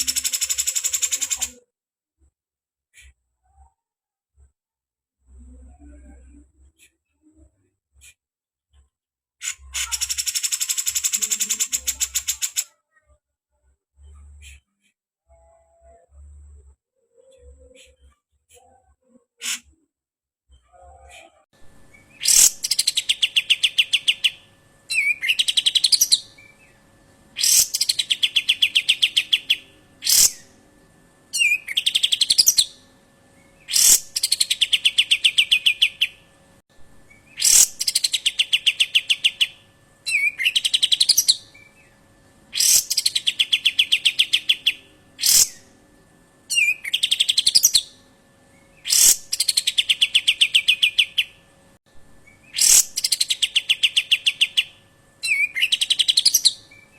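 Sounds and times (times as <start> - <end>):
faint steady hum: 0.0 - 1.5, 5.2 - 7.6, 21.6 - 56.9
bird rattling call: 0.0 - 1.6, 22.2 - 22.8, 27.4 - 27.9, 30.1 - 30.4, 33.7 - 34.1, 37.4 - 37.8, 42.6 - 43.0, 48.9 - 49.2, 52.6 - 53.0.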